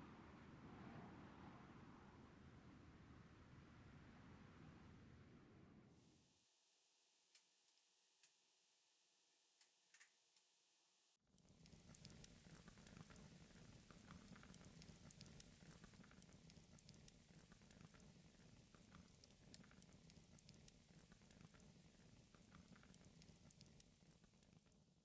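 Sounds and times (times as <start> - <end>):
faint crackling and patter: 9.6 - 10.5, 11.2 - 25.0.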